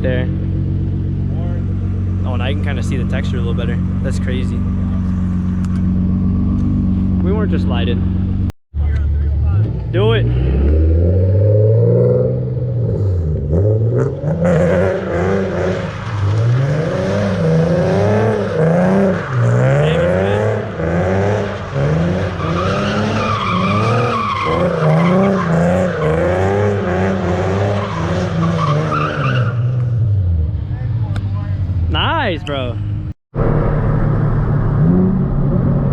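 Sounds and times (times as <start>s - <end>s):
car engine revving: 0.0s - 35.9s
tyres squealing on pavement: 21.4s - 26.2s, 27.6s - 29.8s.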